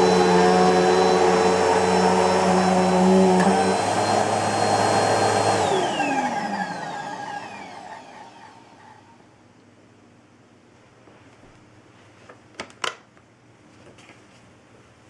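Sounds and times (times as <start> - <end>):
vacuum cleaner running: 0.0 - 9.2
vacuum motor spinning down: 0.0 - 9.2.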